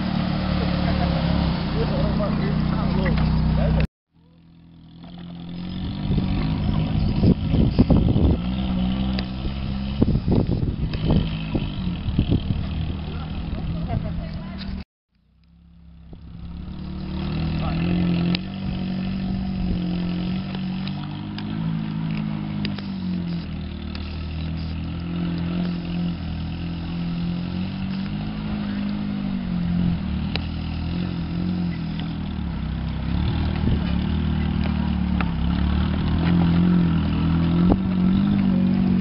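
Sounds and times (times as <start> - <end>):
vehicle engine pulling: 0.0 - 39.0
steady rough noise: 16.0 - 39.0.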